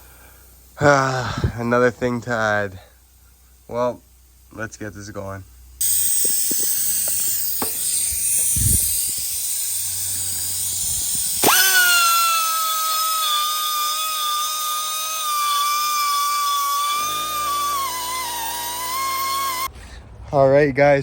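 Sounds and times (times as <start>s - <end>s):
rotary tool grinding metal: 5.8s - 19.7s
rotary tool whining: 5.8s - 19.8s.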